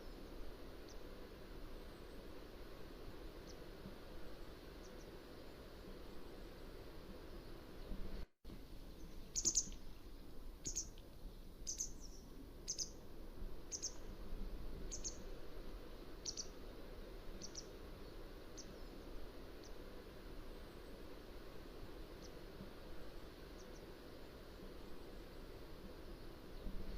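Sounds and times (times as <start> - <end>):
low background noise: 0.0 - 26.9
bird giving high sharp calls: 9.3 - 9.8, 10.6 - 10.9, 11.7 - 13.0, 16.2 - 16.5.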